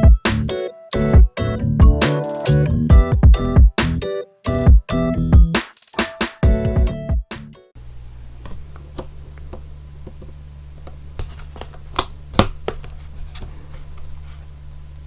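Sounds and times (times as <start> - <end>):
steady low hum: 7.8 - 15.0
hands handling kitchen things: 8.2 - 14.6.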